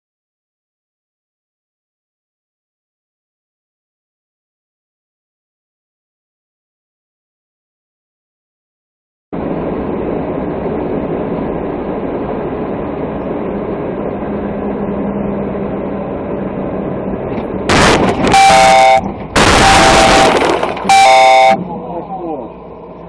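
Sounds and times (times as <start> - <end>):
road noise: 9.4 - 23.0
loud horn blasts: 17.7 - 21.8.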